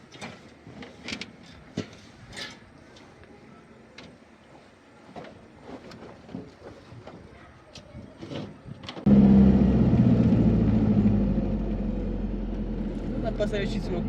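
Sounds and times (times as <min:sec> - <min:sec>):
truck engine humming: 0:09.1 - 0:14.0.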